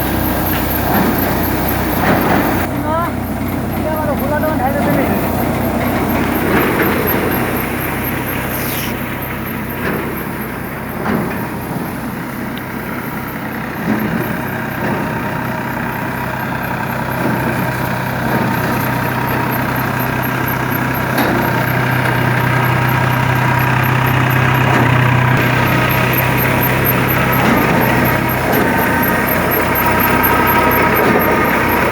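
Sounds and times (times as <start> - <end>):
tractor diesel engine running: 0.0 - 31.9.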